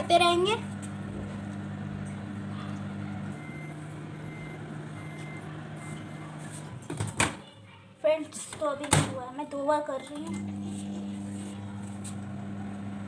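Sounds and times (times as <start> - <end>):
microwave oven humming: 0.0 - 6.9, 10.2 - 13.0.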